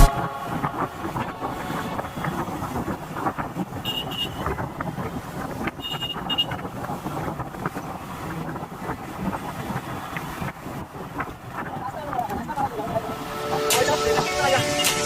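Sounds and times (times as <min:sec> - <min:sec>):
road traffic noise: 0:00.0 - 0:15.0
wind on microphone: 0:00.0 - 0:15.0
vehicle horn beeps: 0:03.8 - 0:04.5, 0:05.8 - 0:06.6.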